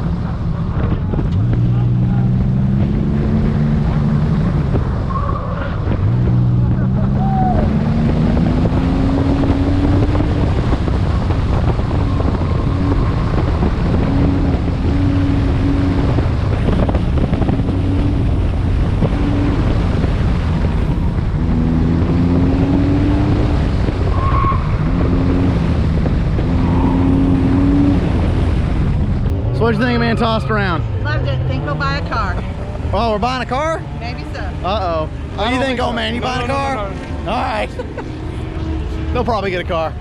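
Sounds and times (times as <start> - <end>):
car engine accelerating: 0.0 - 40.0
wind noise on microphone: 5.7 - 29.5.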